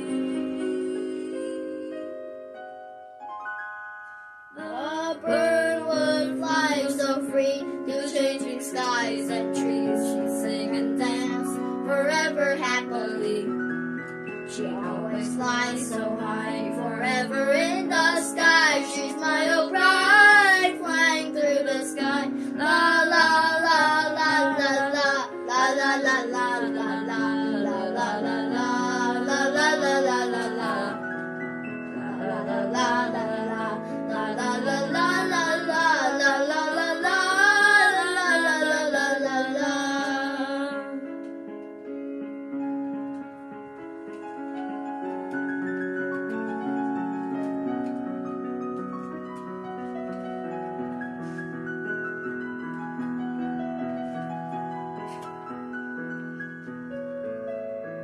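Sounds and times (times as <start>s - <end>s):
woman singing: 0.0s - 1.9s, 4.6s - 13.6s, 14.5s - 31.1s, 32.0s - 41.1s
piano accompaniment: 0.0s - 58.0s.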